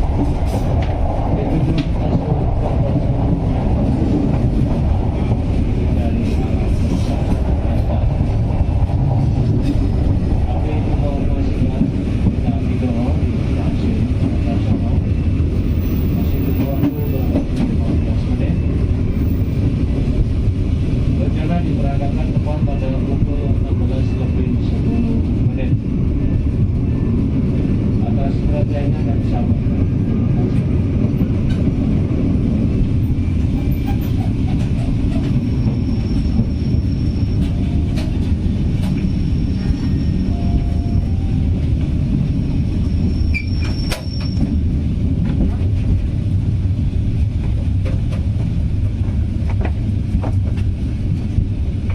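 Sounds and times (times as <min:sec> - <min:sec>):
train wheels rumbling on rail: 0:00.0 - 0:51.9
faint high squeal: 0:42.9 - 0:44.5.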